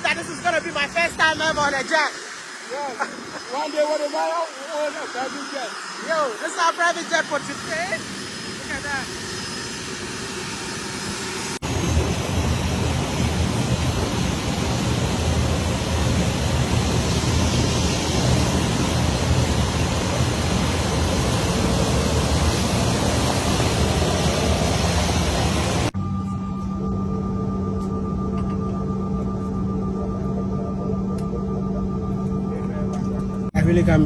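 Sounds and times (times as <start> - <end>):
jet engines roaring: 0.0 - 26.0
low drone: 0.0 - 34.0.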